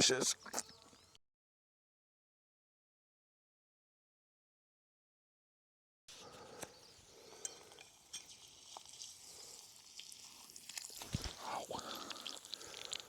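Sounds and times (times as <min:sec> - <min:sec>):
egg sizzling in grease: 0:07.1 - 0:13.0.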